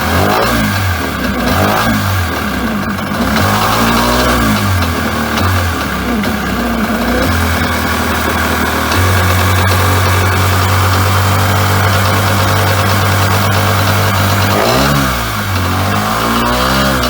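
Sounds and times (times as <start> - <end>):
jet ski engine idling and revving: 0.0 - 17.0.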